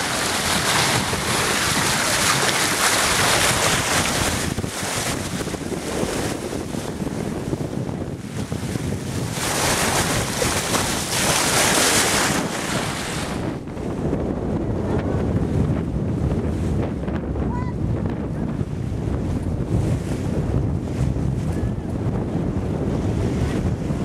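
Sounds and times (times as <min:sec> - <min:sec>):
water rushing along hull: 0:00.0 - 0:24.0
wind buffeting microphone: 0:00.0 - 0:24.0.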